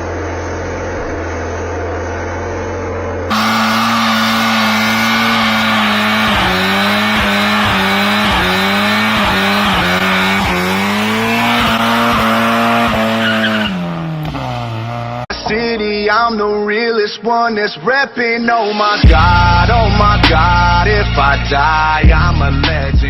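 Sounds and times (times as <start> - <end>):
car engine at high revs: 0.0 - 15.3
tyres squealing: 3.3 - 15.2.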